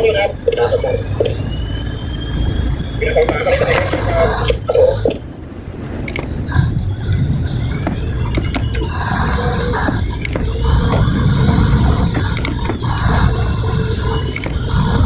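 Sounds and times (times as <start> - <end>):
boat engine rumble: 0.0 - 15.0
faint rising whine: 0.0 - 15.0
sea: 0.0 - 15.0
wind buffeting microphone: 0.0 - 15.0.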